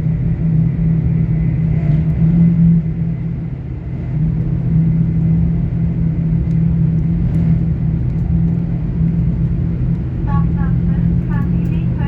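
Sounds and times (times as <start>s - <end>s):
constant low hum: 0.0s - 12.0s
train rumble from inside coach: 0.0s - 12.0s.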